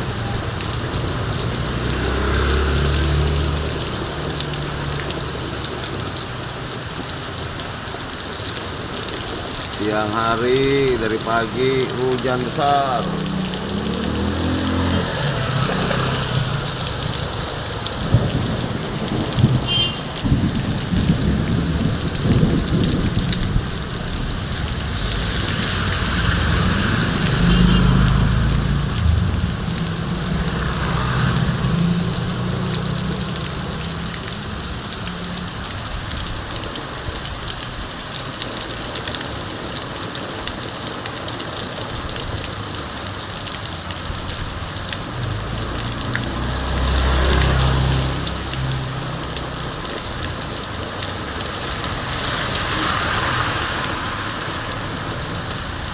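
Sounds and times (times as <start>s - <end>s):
heavy rain pouring: 0.0s - 55.9s
low rumble: 28.7s - 30.6s.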